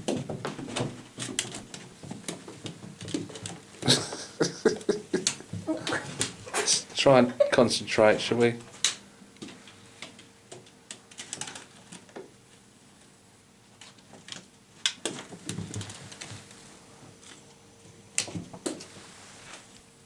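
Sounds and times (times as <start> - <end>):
cats playing with toy on floor: 0.0 - 4.2, 5.1 - 6.8, 8.7 - 12.7, 13.7 - 19.6
faint steady hum: 0.0 - 20.0.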